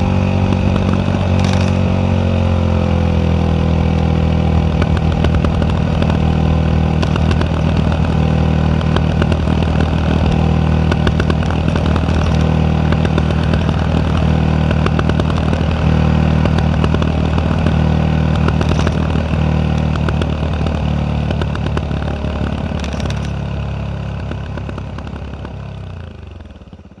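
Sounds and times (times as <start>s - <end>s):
exhaust pops and crackles: 0.0s - 2.0s, 3.5s - 27.0s
motorcycle engine idling: 0.0s - 27.0s.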